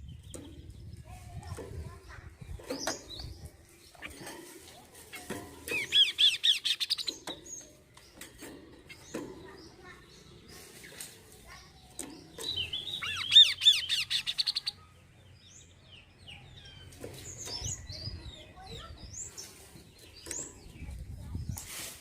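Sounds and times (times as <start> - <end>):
bird chirps: 5.1 - 21.6.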